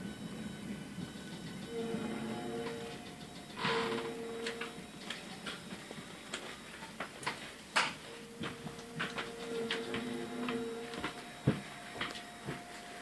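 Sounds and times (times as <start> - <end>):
train braking whine: 0.0 - 13.0
train carriage clicks and creaks: 0.9 - 12.7.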